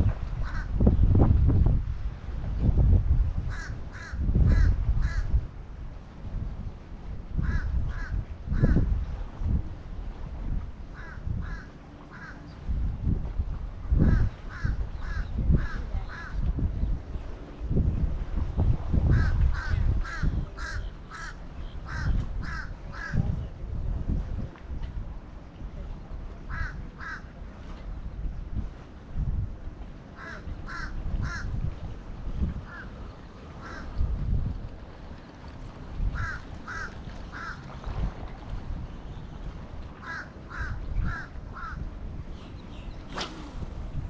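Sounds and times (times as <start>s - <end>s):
low uneven rumble: 0.0s - 44.0s
crow cawing: 36.2s - 37.6s.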